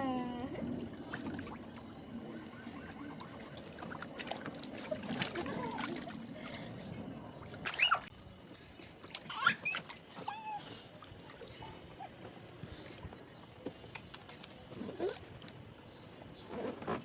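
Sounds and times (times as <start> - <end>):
water splashing in plastic bin: 3.6 - 6.6
high squeaky calls: 7.7 - 8.1, 9.3 - 10.7.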